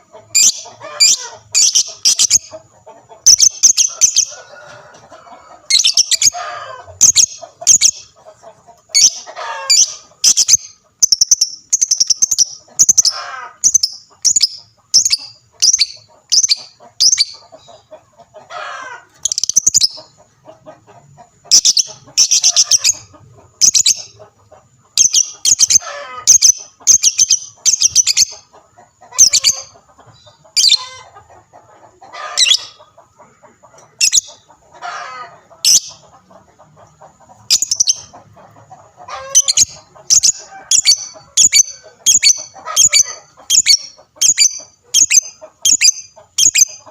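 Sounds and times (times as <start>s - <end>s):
bird chirping: 0.0s - 4.5s, 5.5s - 18.0s, 18.7s - 31.2s, 32.1s - 33.0s, 33.7s - 46.9s
bird trilling: 0.3s - 2.6s, 3.3s - 4.5s, 5.5s - 8.1s, 8.9s - 17.7s, 18.5s - 20.1s, 21.4s - 24.2s, 25.0s - 28.5s, 29.1s - 31.2s, 32.2s - 32.8s, 34.0s - 36.0s, 37.4s - 38.2s, 39.0s - 46.9s.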